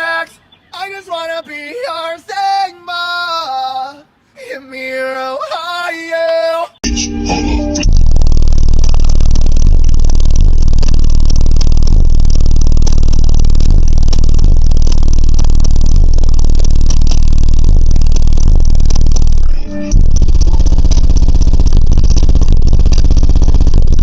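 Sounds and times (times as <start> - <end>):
subwoofer deep bass tone: 6.8 - 24.0.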